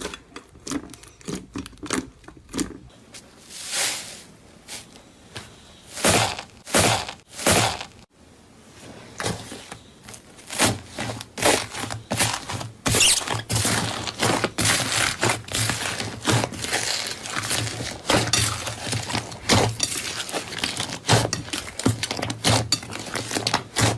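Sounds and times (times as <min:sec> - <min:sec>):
crunchy material being crushed: 0:05.9 - 0:08.0, 0:09.2 - 0:23.9.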